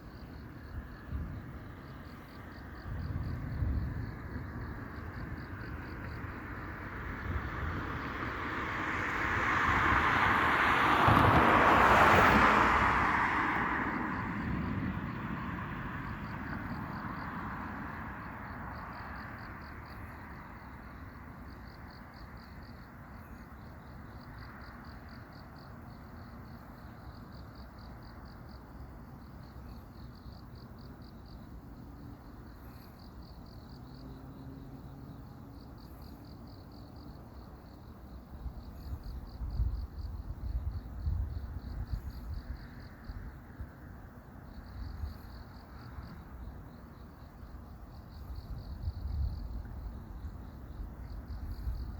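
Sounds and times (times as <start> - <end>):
crickets chirping: 0.0 - 51.9
car passing: 0.1 - 29.0.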